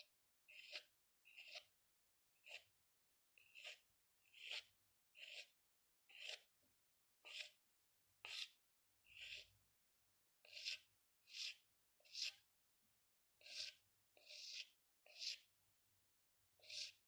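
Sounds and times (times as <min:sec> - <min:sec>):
pen strokes on paper: 0:00.0 - 0:01.7, 0:03.4 - 0:06.5, 0:07.2 - 0:07.6, 0:08.2 - 0:09.6, 0:10.4 - 0:12.5, 0:13.4 - 0:15.5, 0:16.6 - 0:17.0.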